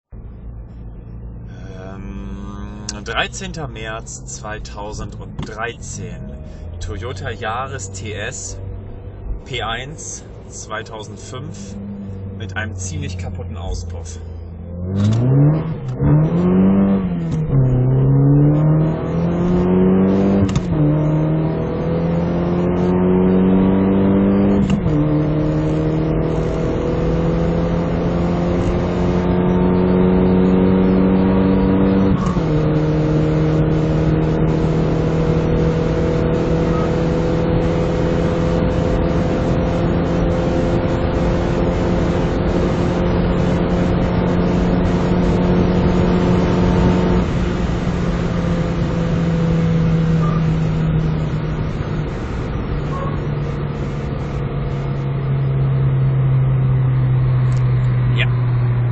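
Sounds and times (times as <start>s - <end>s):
car engine accelerating: 0.1s - 58.9s.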